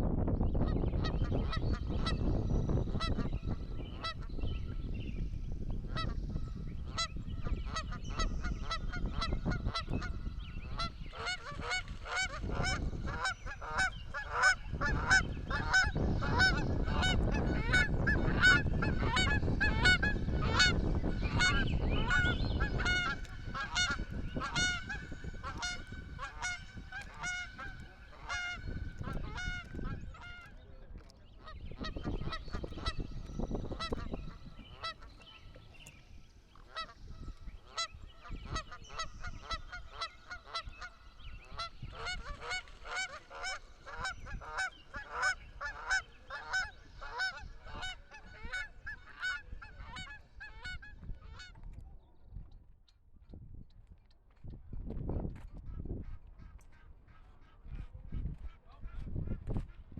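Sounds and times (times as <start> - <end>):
geese honking: 6.9 - 30.5, 33.7 - 35.2, 36.6 - 51.5.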